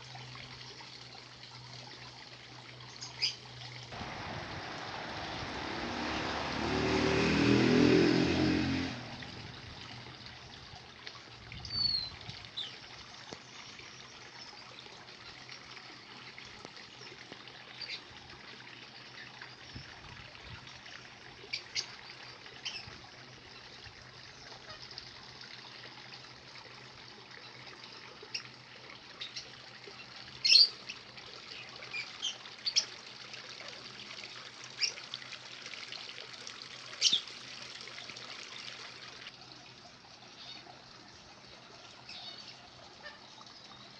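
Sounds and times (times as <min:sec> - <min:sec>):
faint steady hiss: 0:03.8 - 0:07.3
loud low rumbling: 0:04.0 - 0:10.0.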